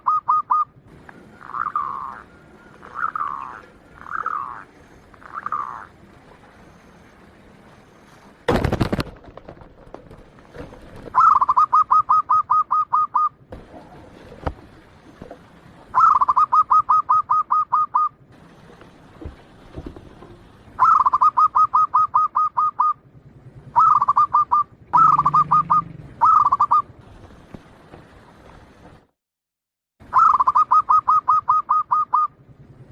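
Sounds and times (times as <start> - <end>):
dove cooing: 0.0 - 7.7, 10.5 - 18.1, 20.0 - 26.9, 30.1 - 32.3.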